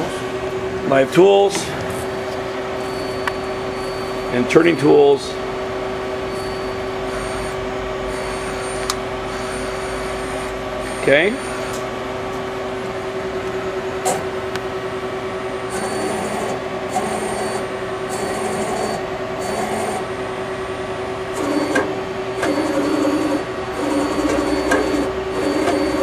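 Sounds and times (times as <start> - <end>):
lathe hum: 0.0 - 26.0
short servo tones: 6.3 - 11.8.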